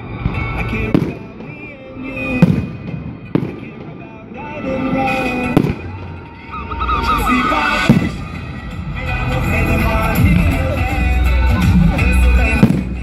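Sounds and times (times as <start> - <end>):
fireworks bangs: 0.0 - 8.7, 12.4 - 13.0
music over loudspeakers: 0.0 - 13.0.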